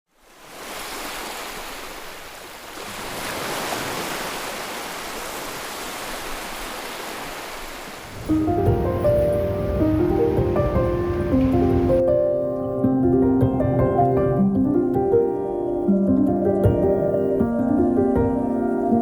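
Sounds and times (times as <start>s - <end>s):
steady rushing noise: 7.2s - 12.0s.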